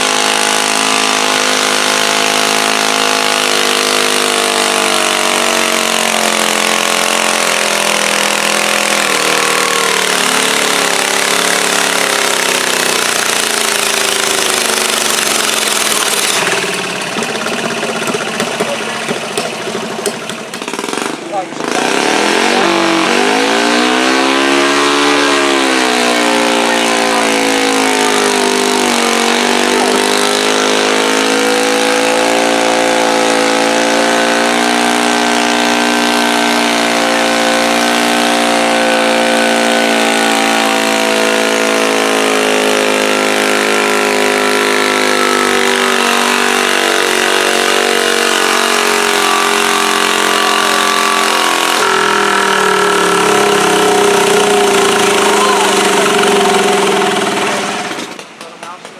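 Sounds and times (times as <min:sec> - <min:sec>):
garden tractor engine under load: 0:00.0 - 0:58.9.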